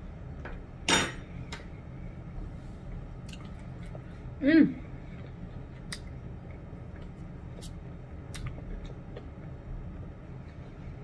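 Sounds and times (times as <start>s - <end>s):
low hum: 0.0s - 11.0s
faint chewing clicks: 5.1s - 10.6s.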